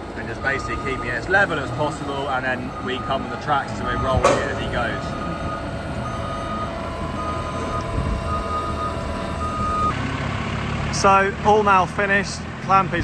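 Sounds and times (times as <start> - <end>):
reversing alarm beeping: 0.0 - 10.0
heavy engines running: 0.0 - 13.0.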